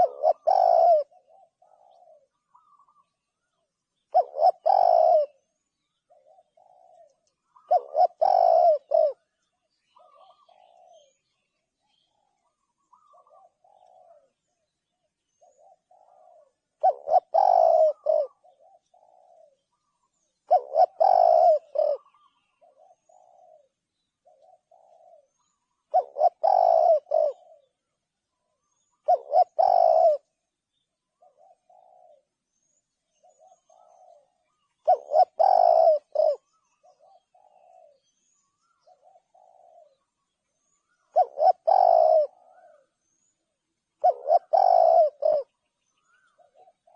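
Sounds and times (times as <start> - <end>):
dove cooing: 0.0 - 46.9.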